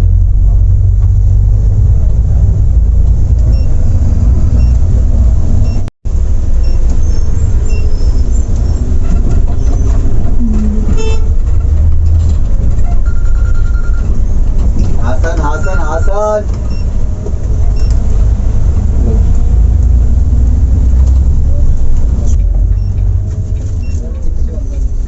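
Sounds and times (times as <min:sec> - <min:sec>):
bus engine rumbling: 0:00.0 - 0:25.0
vehicle horn toot: 0:10.8 - 0:11.4.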